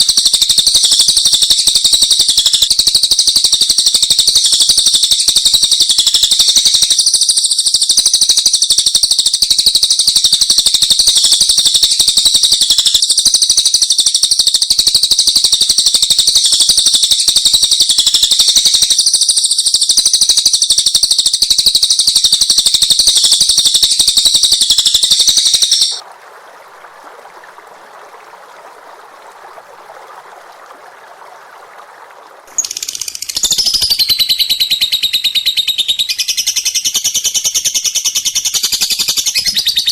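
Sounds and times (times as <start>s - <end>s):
songbird twittering: 0.0s - 26.0s, 32.5s - 39.9s
bird calls with falling notes: 32.5s - 39.9s.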